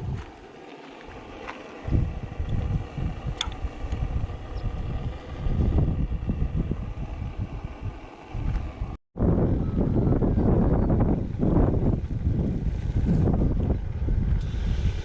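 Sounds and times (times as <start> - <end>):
two-stroke diesel engine running: 0.0 - 9.0.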